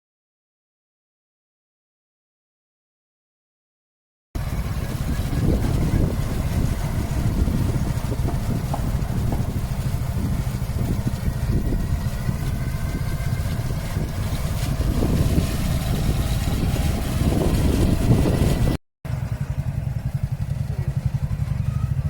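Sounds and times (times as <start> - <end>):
continuous low rumble: 4.4 - 22.0
speedboat engine droning: 4.4 - 22.0.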